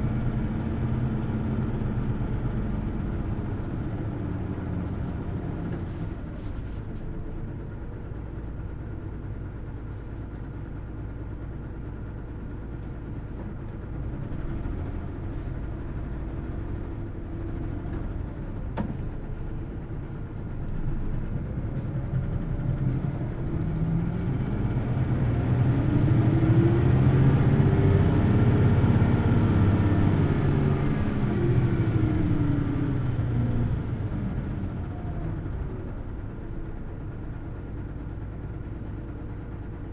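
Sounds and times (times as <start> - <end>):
bus diesel engine revving: 20.6 - 36.2.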